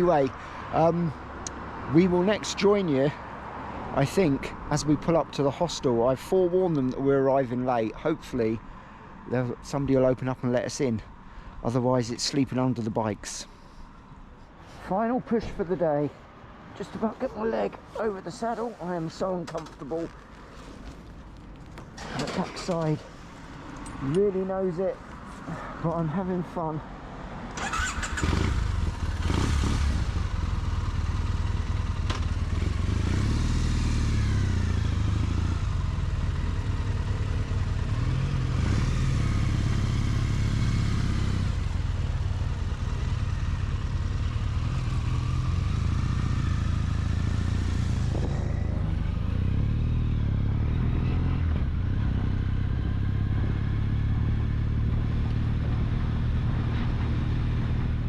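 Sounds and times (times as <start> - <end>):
road and wind noise: 0.0 - 58.0
motorcycle engine accelerating: 27.6 - 58.0.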